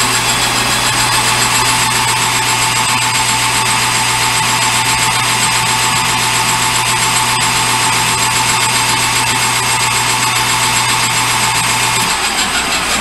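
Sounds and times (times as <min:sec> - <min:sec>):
metal lathe cutting: 0:00.0 - 0:13.0.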